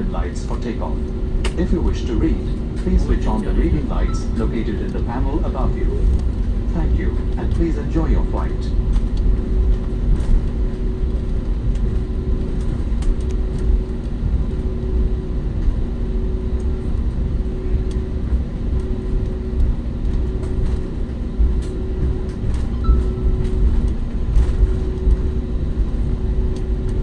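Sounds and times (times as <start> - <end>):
cabin engine rumble: 0.0 - 27.0
faint steady hum: 0.0 - 27.0.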